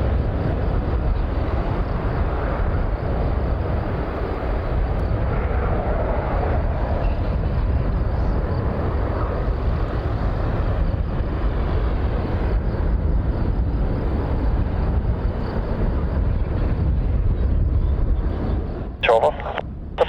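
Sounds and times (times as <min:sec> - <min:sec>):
jet rumble climbing away: 0:19.0 - 0:20.0.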